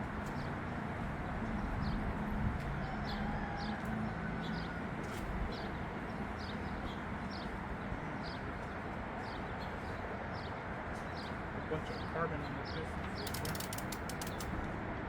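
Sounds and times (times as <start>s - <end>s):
small bird chirping: 9.2s - 14.5s.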